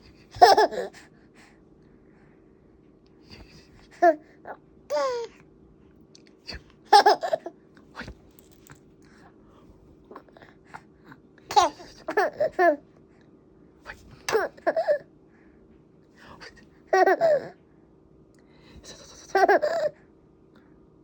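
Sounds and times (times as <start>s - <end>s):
baby laughing and babbling: 0.1s - 1.1s, 3.8s - 5.4s, 6.9s - 7.6s, 11.5s - 12.9s, 14.2s - 15.1s, 16.9s - 17.6s, 19.1s - 20.0s.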